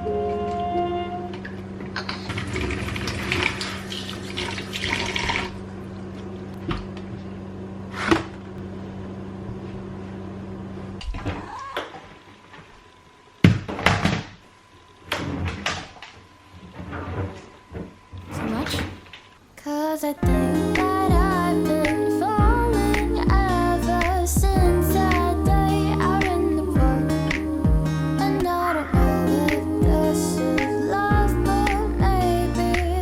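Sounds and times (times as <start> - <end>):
low hum: 20.2 - 33.0.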